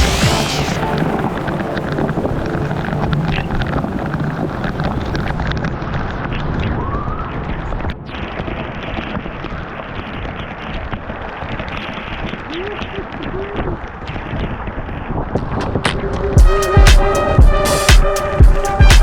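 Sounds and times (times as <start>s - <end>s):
waterfall rushing: 0.0s - 5.4s.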